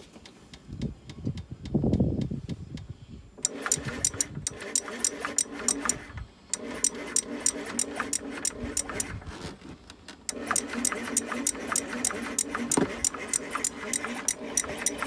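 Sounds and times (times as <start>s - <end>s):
sharp clicking: 3.4s - 9.2s, 10.3s - 15.0s
scooter engine humming: 3.4s - 9.5s, 10.3s - 15.0s.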